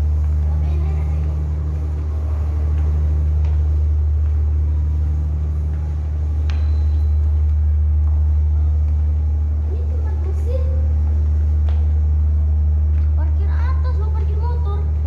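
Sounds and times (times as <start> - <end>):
ship diesel engines rumbling: 0.0 - 15.0.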